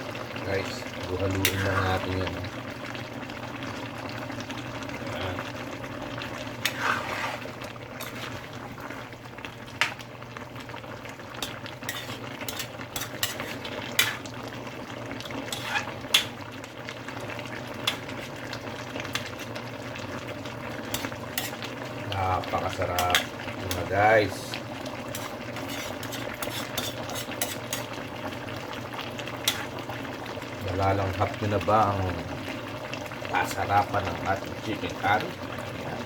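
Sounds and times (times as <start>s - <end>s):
sauce bubbling: 0.0s - 36.0s
spoon scraping against pot: 6.6s - 8.5s, 11.4s - 14.3s, 15.2s - 16.4s, 17.8s - 18.4s, 19.1s - 19.6s, 20.8s - 21.7s, 22.9s - 23.9s, 25.1s - 28.0s, 29.4s - 29.8s.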